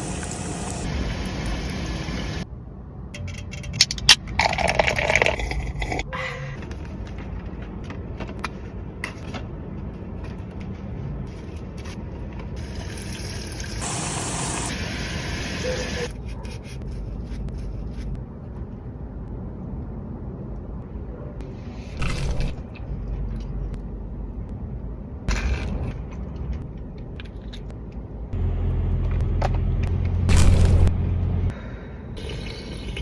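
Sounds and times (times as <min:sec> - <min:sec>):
steady low rumble: 0:16.8 - 0:32.2.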